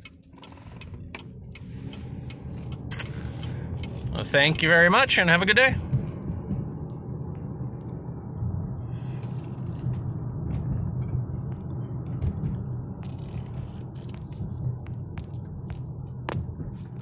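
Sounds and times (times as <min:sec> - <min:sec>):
car cabin low rumble: 0:00.0 - 0:17.0.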